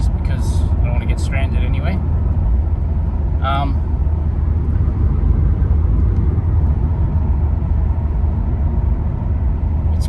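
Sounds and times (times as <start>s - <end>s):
car engine rumble in cabin: 0.0s - 10.0s
road noise: 0.0s - 10.0s.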